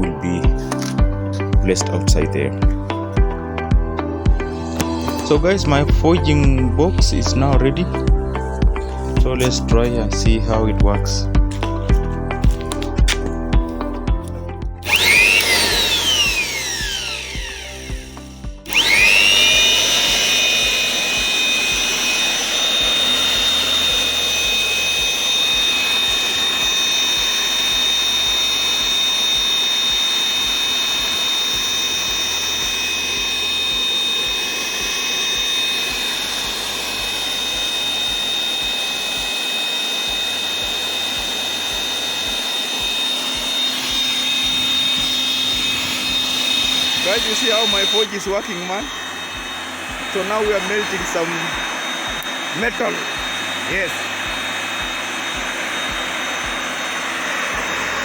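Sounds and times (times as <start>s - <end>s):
background music: 0.0s - 39.3s
electric air blower whining: 0.0s - 58.0s.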